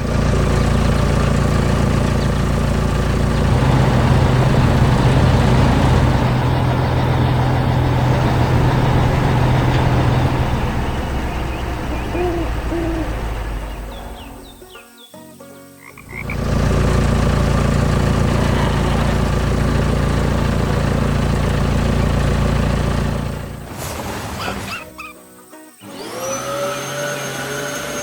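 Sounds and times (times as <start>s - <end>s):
heavy vehicle engine running: 0.0s - 14.8s, 16.0s - 25.0s
short hoot-like calls: 11.3s - 14.8s.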